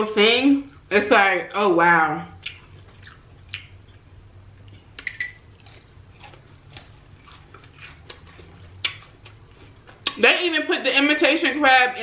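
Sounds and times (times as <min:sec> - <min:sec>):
person chewing crunchy food: 0:02.3 - 0:10.2.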